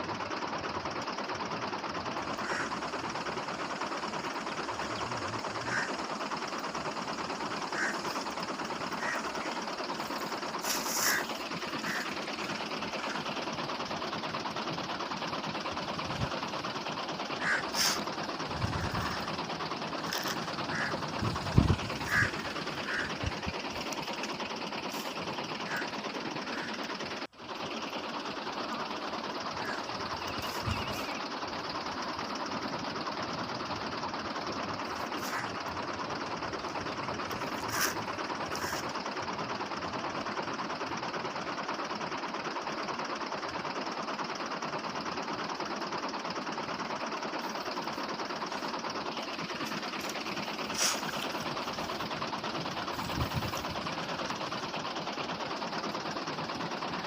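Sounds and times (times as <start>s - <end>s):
small motor whirring: 7.7s - 13.2s, 17.4s - 27.0s, 36.6s - 39.0s, 49.4s - 54.6s.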